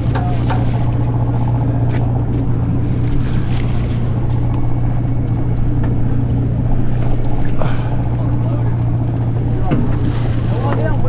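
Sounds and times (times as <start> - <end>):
boat engine drone: 0.0 - 11.0
water noise: 0.0 - 11.0.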